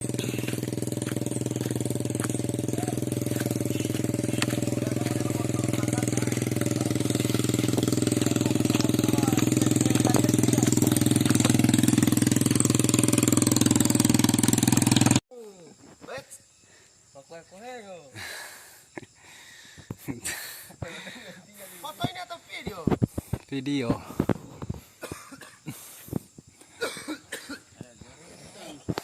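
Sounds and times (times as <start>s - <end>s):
small engine running: 0.0s - 15.2s.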